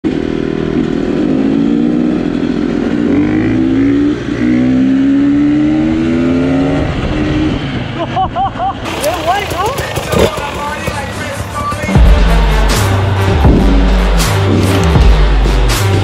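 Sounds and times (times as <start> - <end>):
motorcycle engine revving hard: 0.1 - 8.0, 8.8 - 16.0.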